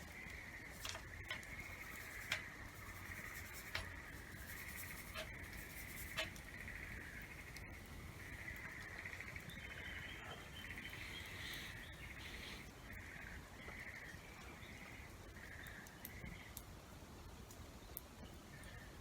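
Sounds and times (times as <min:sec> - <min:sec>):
small animal pulsed trills: 0:00.0 - 0:13.3
faint steady background noise: 0:00.0 - 0:19.0.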